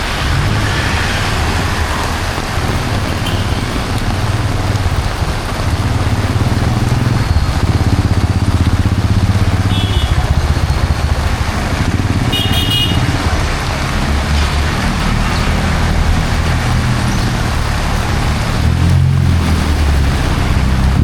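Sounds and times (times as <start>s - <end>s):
rain on wet road: 0.0s - 21.0s
vehicle engines passing: 0.0s - 21.0s
high-pitched car horn: 9.7s - 10.2s, 12.3s - 13.1s.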